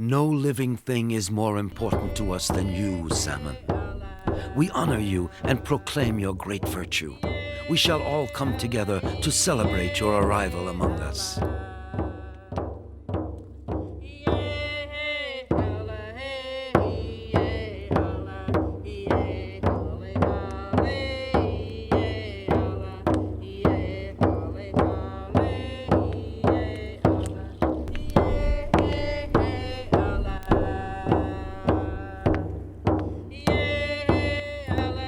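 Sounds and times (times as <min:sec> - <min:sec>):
voices chanting a song: 0:00.1 - 0:11.5, 0:25.1 - 0:35.0
drum beating a steady pulse: 0:01.7 - 0:35.0.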